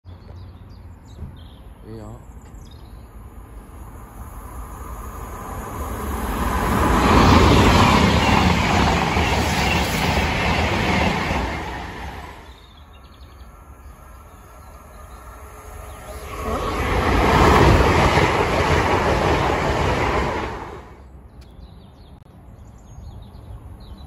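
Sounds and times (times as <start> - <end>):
diesel passenger train passing: 2.4 - 21.4.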